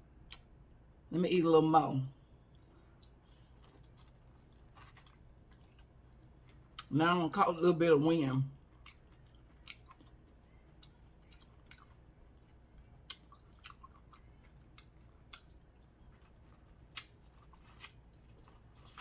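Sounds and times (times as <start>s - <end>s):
person chewing food: 2.2s - 6.9s, 8.6s - 19.0s.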